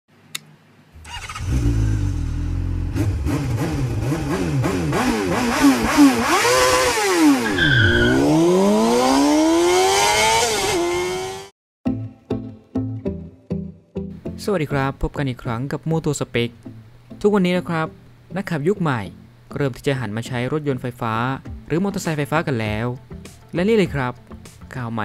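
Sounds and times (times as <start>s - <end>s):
motorcycle engine revving: 1.0s - 11.5s.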